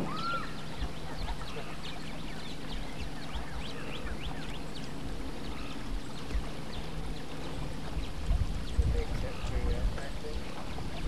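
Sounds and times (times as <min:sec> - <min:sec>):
birds chirping: 0:00.0 - 0:11.0
boat motor humming: 0:00.0 - 0:11.0.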